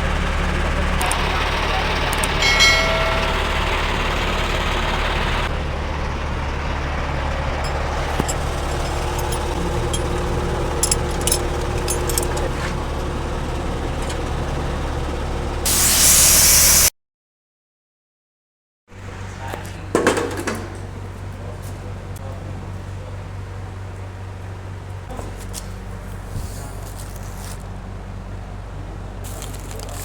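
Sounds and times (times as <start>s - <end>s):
engine idling: 0.0s - 16.9s, 19.0s - 30.0s
loud hiss: 15.7s - 16.9s.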